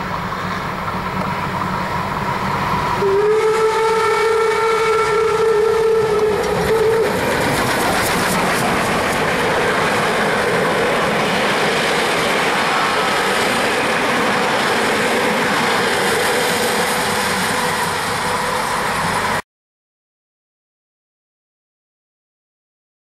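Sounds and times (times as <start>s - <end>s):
train wheels rushing on rails: 0.0s - 19.4s.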